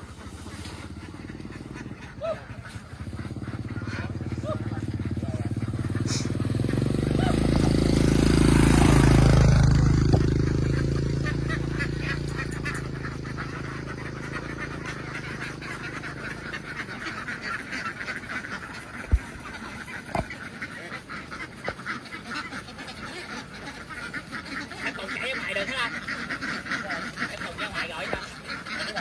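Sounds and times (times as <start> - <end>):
ducks quacking: 0.0 - 29.0
vehicle engine: 0.0 - 29.0.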